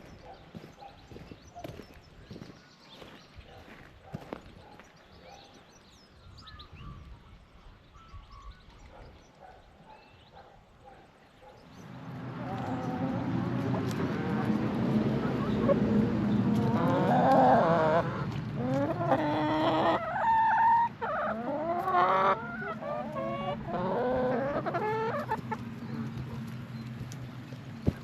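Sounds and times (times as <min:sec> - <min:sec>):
chickens clucking: 0:11.8 - 0:28.0.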